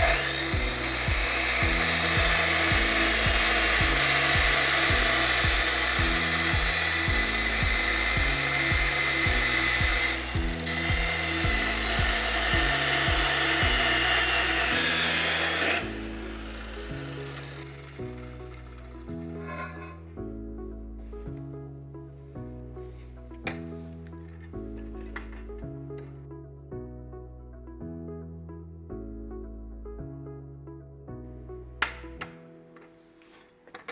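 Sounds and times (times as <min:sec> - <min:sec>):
power tool running under load: 0:00.0 - 0:19.0
background music with bass line: 0:00.0 - 0:32.4.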